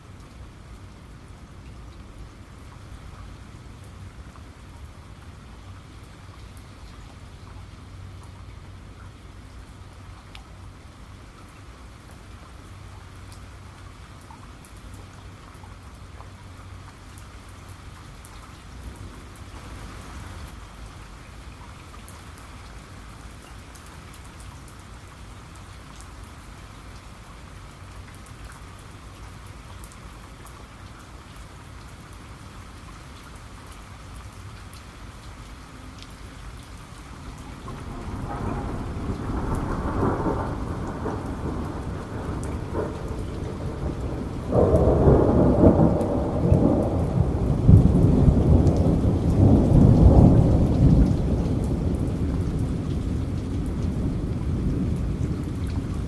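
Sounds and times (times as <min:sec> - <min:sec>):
steady rain falling: 0:00.0 - 0:56.0
raindrops ticking: 0:36.0 - 0:56.0
thunder rumble: 0:37.4 - 0:56.0.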